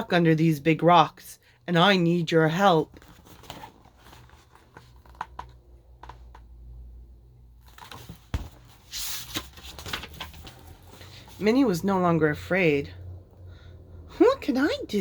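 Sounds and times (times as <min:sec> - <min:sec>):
book pages rustling and turning: 0:02.8 - 0:06.8, 0:07.5 - 0:11.6.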